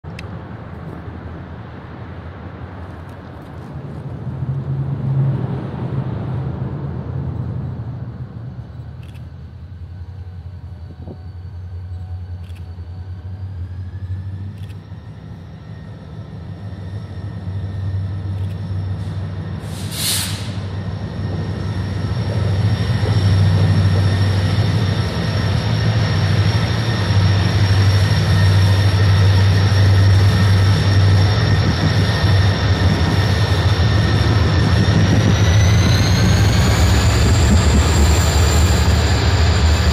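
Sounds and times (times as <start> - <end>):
diesel locomotive engine drone: 0.0 - 39.9
freight cars rolling past: 0.3 - 39.9
high whine: 4.4 - 39.9
short hiss: 19.6 - 20.7.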